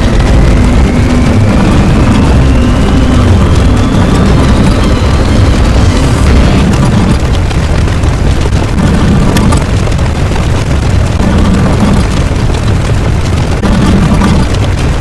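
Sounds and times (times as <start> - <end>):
deep rumble: 0.0 - 15.0.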